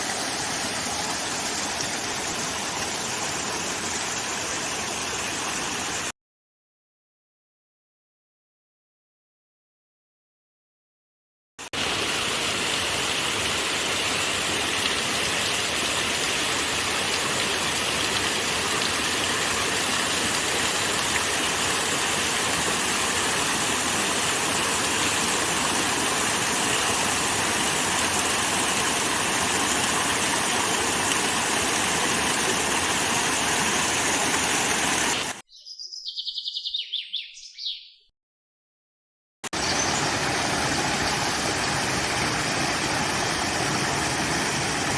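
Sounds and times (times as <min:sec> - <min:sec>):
flowing water rushing: 0:00.0 - 0:06.1, 0:11.6 - 0:35.4, 0:39.6 - 0:44.9
bird call of rapid notes: 0:35.1 - 0:38.1.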